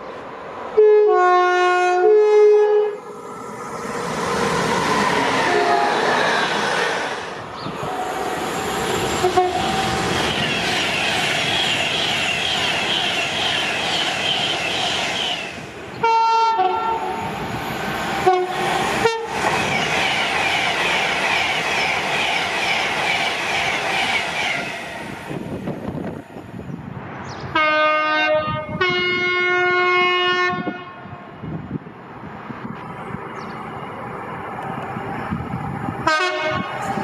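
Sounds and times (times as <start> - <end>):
trains clattering past at speed: 0.0 - 37.0
electric train rushing past: 0.2 - 37.0
train horn blasts and toots: 0.8 - 3.0, 5.5 - 6.0, 9.2 - 9.8, 16.0 - 17.2, 18.2 - 19.4, 27.5 - 31.2, 36.0 - 36.9.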